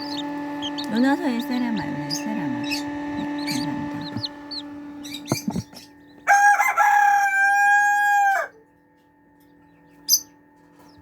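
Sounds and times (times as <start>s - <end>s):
high chirp: 0.0s - 6.4s
rooster crowing: 6.2s - 8.6s.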